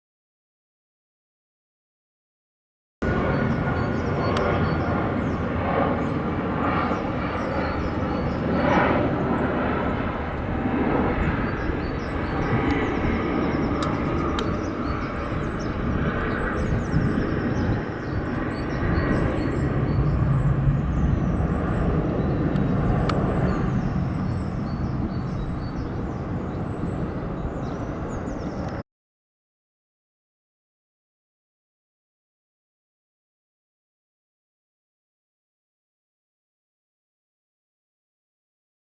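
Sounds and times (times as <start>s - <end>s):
jet flying past roaring: 3.0s - 28.8s.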